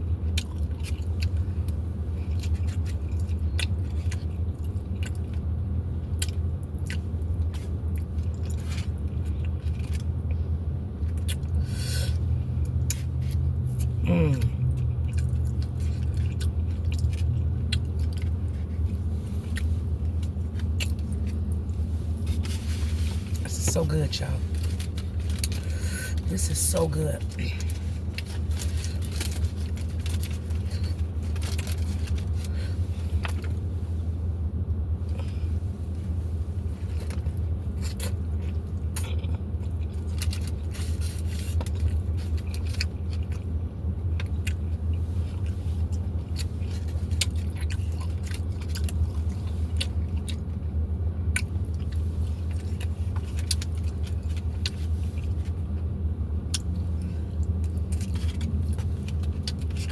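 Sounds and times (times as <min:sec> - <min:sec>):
chewing and biting: 0:00.0 - 0:23.7, 0:24.4 - 0:26.5, 0:27.2 - 0:33.6, 0:36.6 - 0:59.9
low hum: 0:00.0 - 0:59.9
clicks and crunches: 0:24.5 - 0:26.4, 0:27.4 - 0:33.6, 0:51.3 - 0:55.6, 0:57.4 - 0:59.9.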